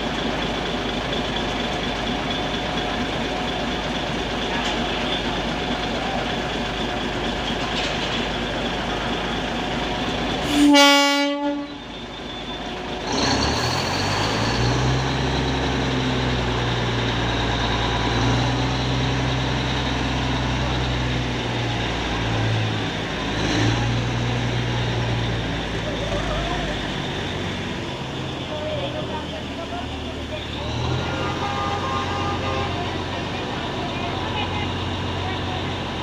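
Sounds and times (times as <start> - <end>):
diesel locomotive engine: 0.0 - 36.0
locomotive horn blast: 10.4 - 11.9, 30.7 - 33.2.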